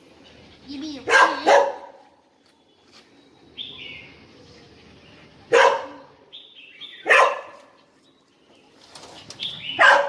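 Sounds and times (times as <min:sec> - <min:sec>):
small dog barking sharply: 0:01.1 - 0:01.9, 0:07.1 - 0:07.6, 0:09.8 - 0:10.0.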